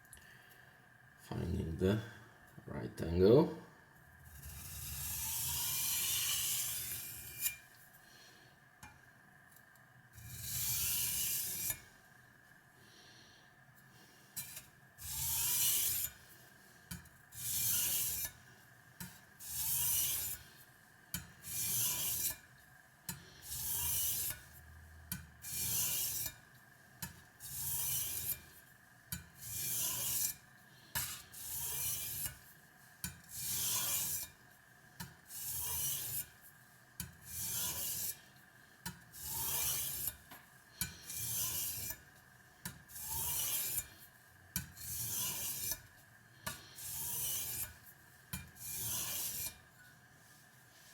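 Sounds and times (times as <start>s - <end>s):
blade rasping on whetstone: 4.3s - 7.6s, 10.2s - 11.8s, 14.4s - 16.2s, 17.4s - 18.4s, 19.4s - 20.5s, 21.1s - 22.5s, 23.1s - 24.5s, 25.1s - 26.4s, 27.0s - 32.4s, 33.0s - 34.4s, 35.0s - 36.4s, 37.0s - 38.3s, 39.1s - 42.1s, 42.7s - 45.9s, 46.5s - 49.7s.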